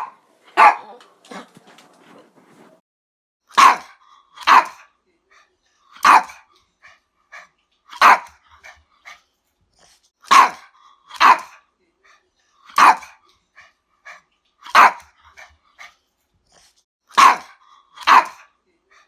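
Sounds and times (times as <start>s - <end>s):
dog barking: 0.0s - 1.5s, 3.5s - 4.9s, 6.0s - 6.5s, 7.9s - 8.8s, 10.2s - 11.6s, 12.7s - 13.2s, 14.6s - 15.5s, 17.1s - 18.5s.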